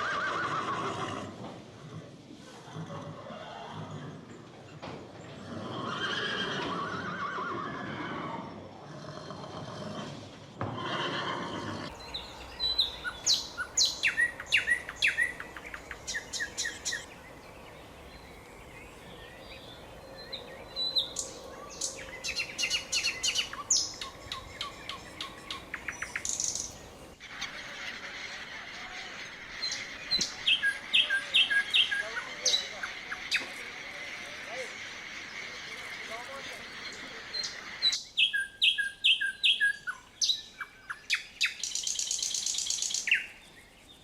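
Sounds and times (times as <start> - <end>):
horse whinny: 0.0 - 1.4, 2.5 - 4.3, 5.4 - 11.9
songbirds chirping and singing: 11.7 - 44.0.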